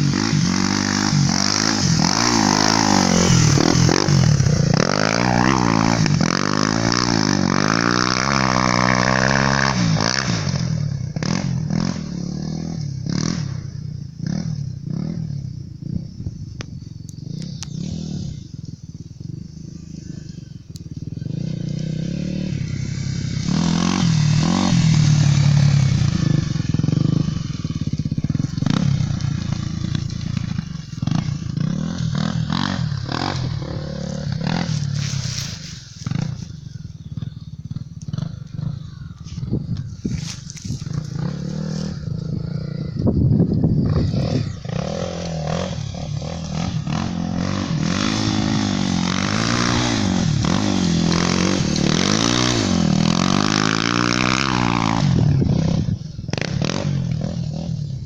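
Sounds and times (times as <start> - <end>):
motorcycle engine under load: 0.0 - 58.0.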